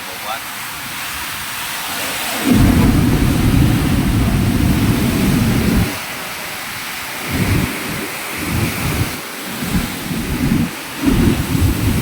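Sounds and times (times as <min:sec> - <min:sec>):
steady rushing hiss: 0:00.0 - 0:12.0
loud low rumble: 0:02.5 - 0:06.0.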